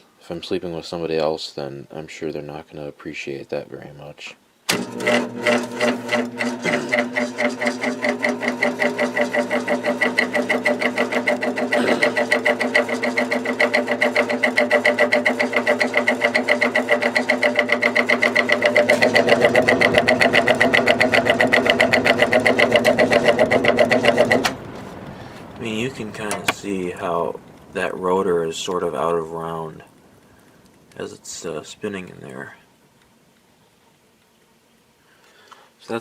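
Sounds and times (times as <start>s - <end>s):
fan motor pulsing hum: 4.7s - 32.6s.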